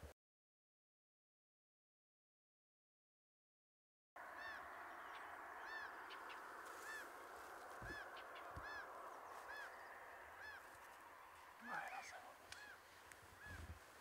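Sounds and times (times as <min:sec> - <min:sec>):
faint bird calls: 0:04.2 - 0:14.0.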